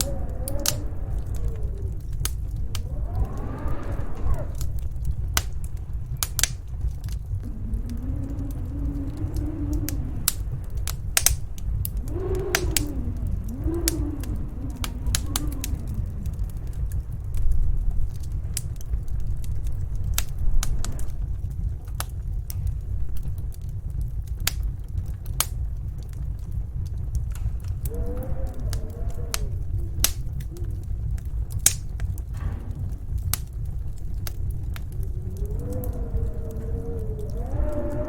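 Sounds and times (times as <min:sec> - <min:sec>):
wind howling: 0:00.0 - 0:38.0
wood fire crackling and popping: 0:00.0 - 0:38.0.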